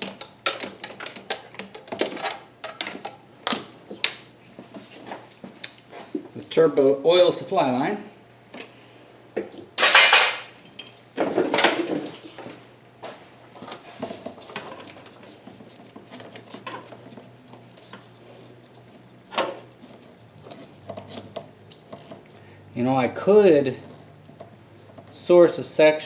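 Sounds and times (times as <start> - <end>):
metal tools clanking: 8.6 - 8.8, 9.8 - 11.0.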